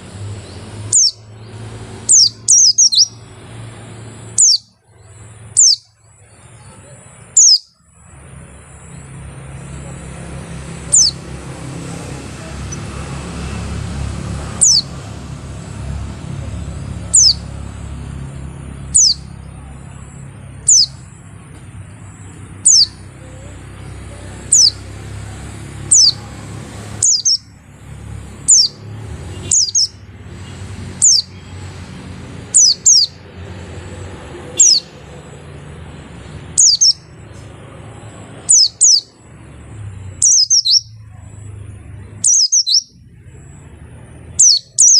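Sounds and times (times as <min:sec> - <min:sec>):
bird calling high notes: 0:04.3 - 0:06.0, 0:13.6 - 0:15.4, 0:28.4 - 0:30.0, 0:32.5 - 0:33.2, 0:36.5 - 0:37.1, 0:40.2 - 0:41.0, 0:42.2 - 0:43.0.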